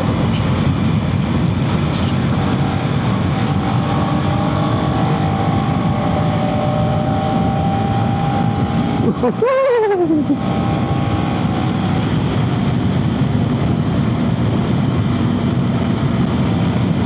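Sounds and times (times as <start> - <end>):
wind blast on microphone: 0.0 - 9.7.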